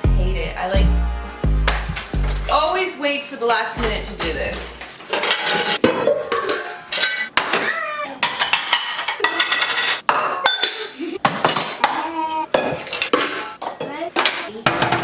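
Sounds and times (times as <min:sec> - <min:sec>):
dishes and cutlery clattering: 0:05.1 - 0:15.0.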